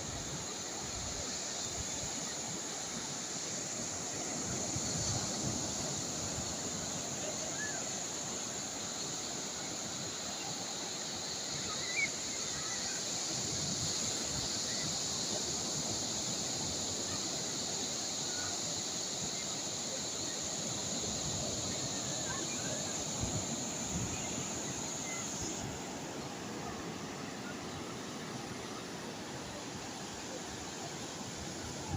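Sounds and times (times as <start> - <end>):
sea waves washing on shore: 0.0 - 31.9
wind gusts on microphone: 20.2 - 27.5.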